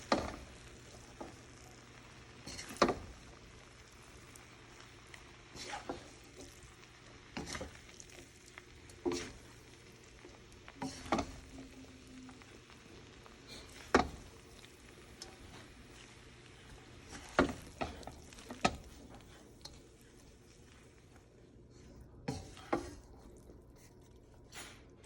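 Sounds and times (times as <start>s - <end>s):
faint sizzle: 0.0s - 25.0s
utensil scraping a pan: 2.4s - 9.9s, 10.8s - 12.4s, 13.4s - 21.0s, 21.8s - 23.9s.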